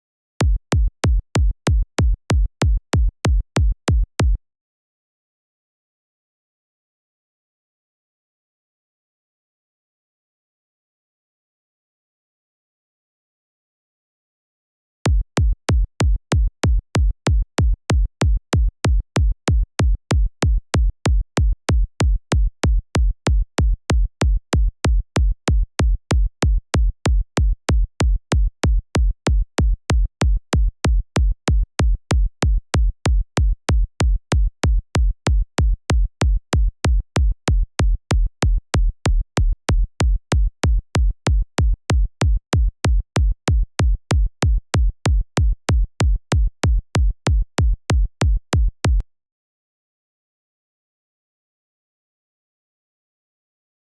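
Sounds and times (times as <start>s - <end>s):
electronic kick drum loop: 0.4s - 4.0s, 15.1s - 49.0s.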